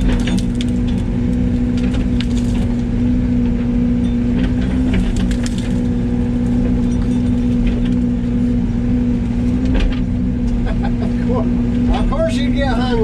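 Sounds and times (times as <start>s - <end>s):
branches cracking and snapping: 0.0s - 3.0s, 4.4s - 8.4s
excavator diesel engine running: 0.0s - 13.0s.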